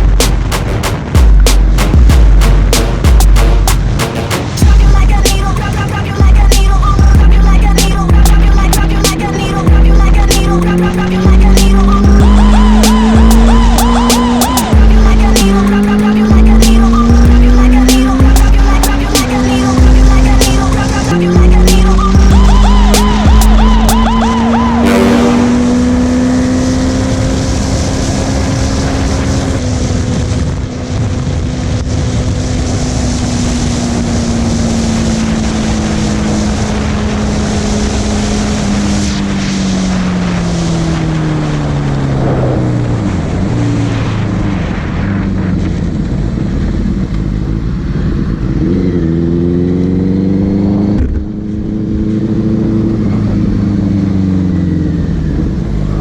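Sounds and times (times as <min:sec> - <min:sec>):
motorcycle engine revving: 0:00.0 - 0:56.0
wind noise: 0:27.2 - 0:49.2.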